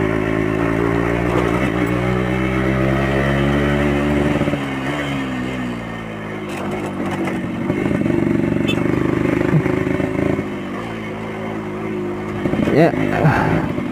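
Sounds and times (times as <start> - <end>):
two-stroke engine running: 0.0 - 13.9.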